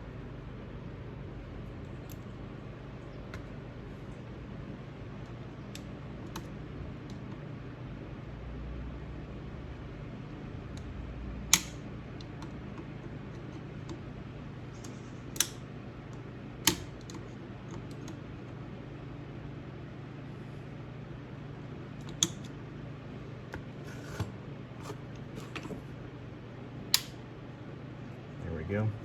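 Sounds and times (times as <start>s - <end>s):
steady low hum: 0.0s - 29.0s
sharp metallic clicks of snap ring: 11.5s - 11.8s, 27.0s - 27.2s.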